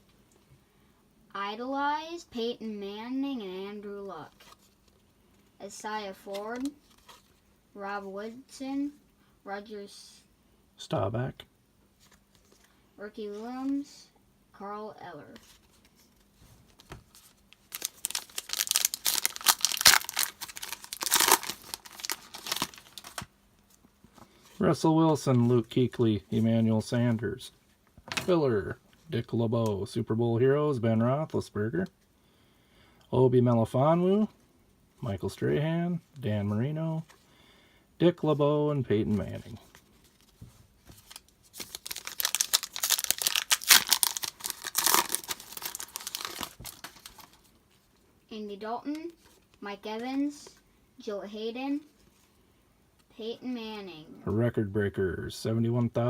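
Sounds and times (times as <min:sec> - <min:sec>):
foil wrapper tearing and crinkling: 0:17.6 - 0:23.3, 0:41.0 - 0:47.4.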